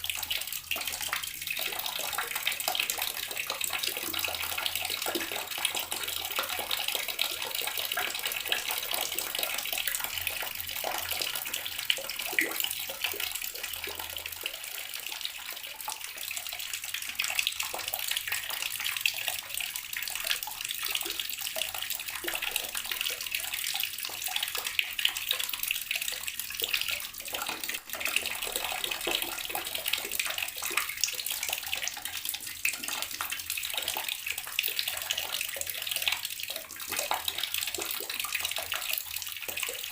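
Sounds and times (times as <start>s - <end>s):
tap water splashing: 20.2s - 39.9s.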